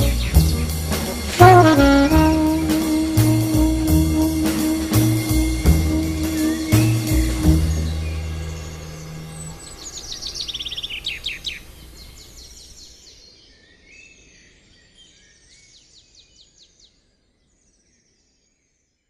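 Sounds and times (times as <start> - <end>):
birds chirping and twittering: 0.0 - 3.8, 4.7 - 16.8
soundtrack music: 0.0 - 9.8.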